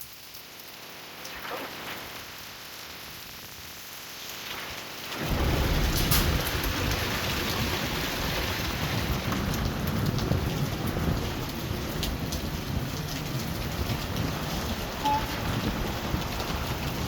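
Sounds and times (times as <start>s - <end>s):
heavy rain downpour: 0.0s - 17.0s
raindrops ticking on surfaces: 0.0s - 17.0s
low thunder rumble: 5.1s - 17.0s.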